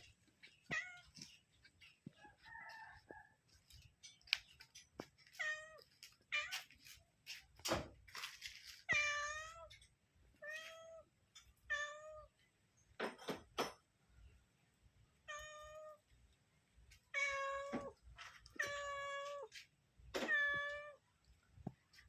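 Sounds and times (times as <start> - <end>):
cat meowing: 17.1 - 17.9, 20.2 - 21.0.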